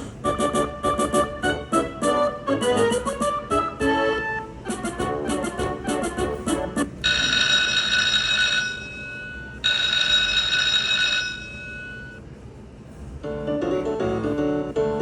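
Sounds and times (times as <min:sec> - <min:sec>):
electric bell ringing: 0:07.0 - 0:12.2
slot machine chiming music: 0:07.0 - 0:12.2.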